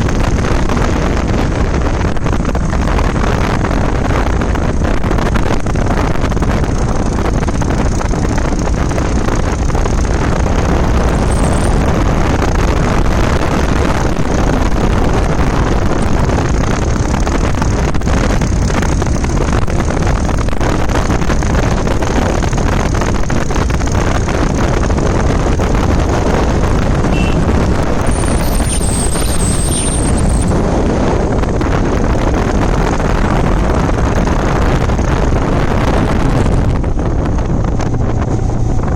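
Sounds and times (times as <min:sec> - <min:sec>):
motorbike running: 0:00.0 - 0:38.9
high thin tone: 0:11.1 - 0:11.8, 0:27.1 - 0:30.6.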